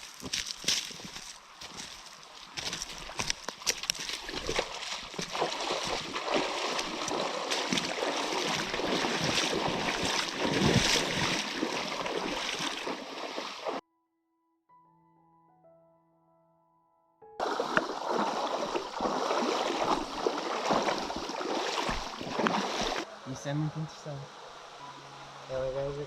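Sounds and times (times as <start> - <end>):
water running in shallow stream: 0.0 - 13.8, 17.4 - 23.1.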